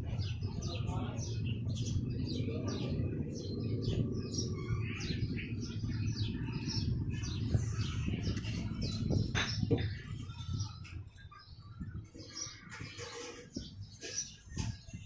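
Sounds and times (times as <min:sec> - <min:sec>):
steady low rumble: 0:00.0 - 0:11.2
small birds chirping: 0:00.0 - 0:15.0.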